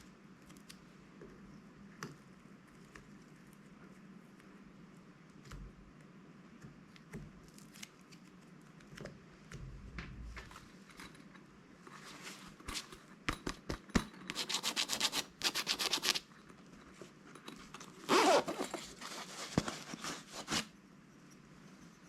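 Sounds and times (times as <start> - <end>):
plastic packaging rustling: 17.9 - 20.7.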